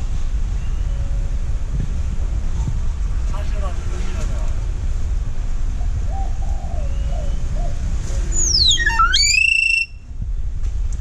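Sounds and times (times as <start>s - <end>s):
talking bird whistling: 6.2s - 10.0s.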